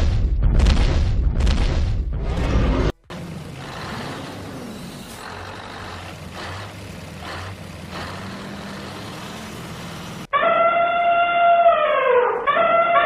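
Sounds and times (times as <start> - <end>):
large vehicle engine humming: 2.9 - 10.3.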